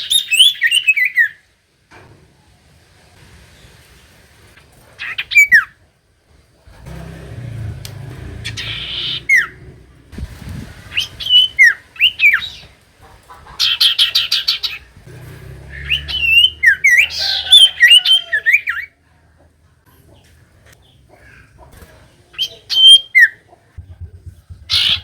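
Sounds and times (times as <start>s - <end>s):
bird chattering notes: 8.4s - 10.1s, 22.4s - 25.0s.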